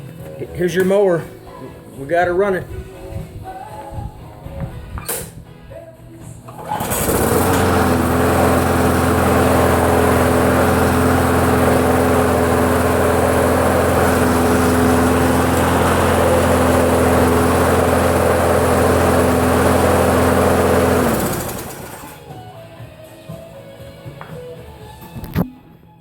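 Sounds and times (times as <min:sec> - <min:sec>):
lawn mower engine running: 0:06.5 - 0:22.3.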